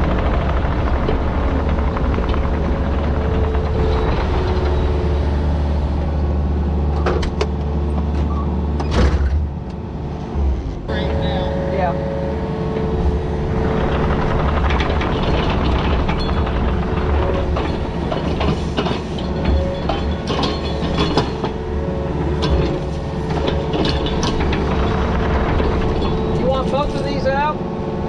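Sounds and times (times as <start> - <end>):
diesel engine under load: 0.0 - 28.0
metal clanks and rattles: 12.7 - 27.6.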